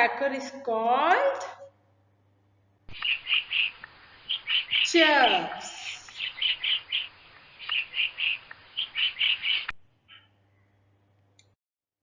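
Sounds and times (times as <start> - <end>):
woodpecker calls: 2.9 - 10.4.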